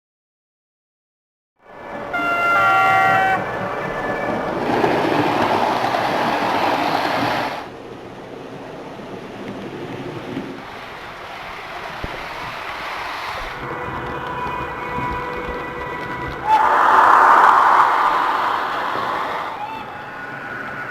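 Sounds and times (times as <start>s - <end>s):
train rushing past: 1.6s - 20.9s
train horn chord: 1.7s - 4.6s, 13.6s - 18.6s.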